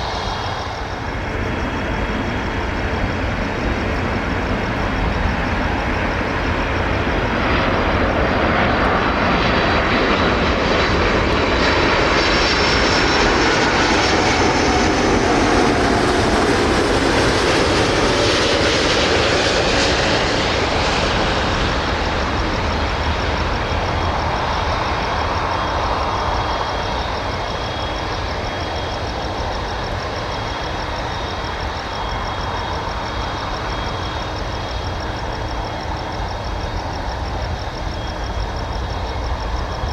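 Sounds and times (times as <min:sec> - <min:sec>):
jet engines passing overhead: 0:00.0 - 0:39.9.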